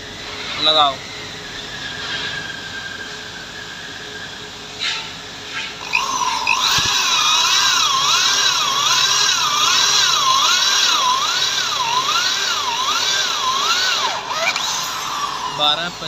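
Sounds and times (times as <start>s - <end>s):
electric drill driving screw into metal: 5.8s - 15.5s.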